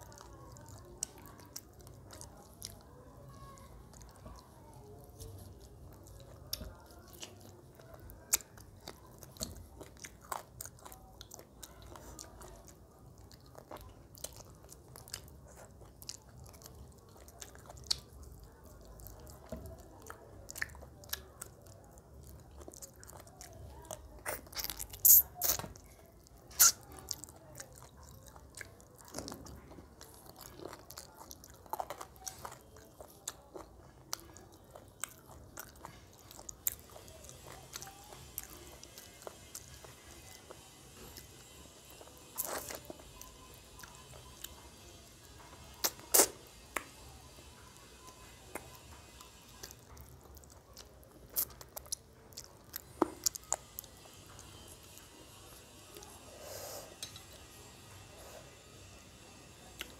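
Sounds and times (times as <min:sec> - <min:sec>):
person chewing and biting: 0:00.0 - 0:44.5, 0:45.8 - 0:47.5, 0:48.5 - 0:56.0
clicky mouth sounds: 0:24.2 - 0:25.8, 0:45.8 - 0:46.9, 0:57.0 - 0:57.2.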